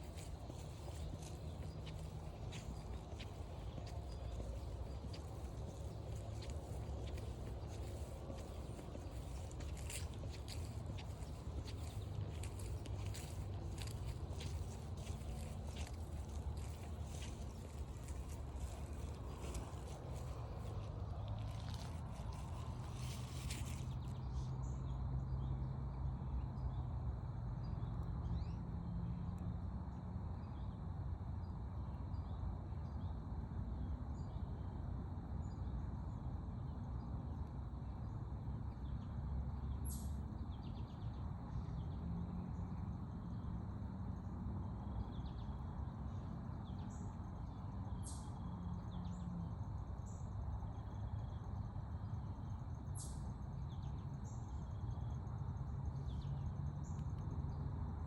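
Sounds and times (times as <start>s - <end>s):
steady low rumble: 0.0s - 25.6s.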